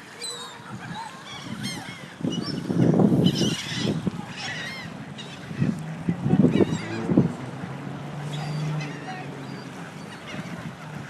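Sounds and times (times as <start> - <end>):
waterfowl honking and quacking: 0.2 - 5.8, 8.2 - 11.0.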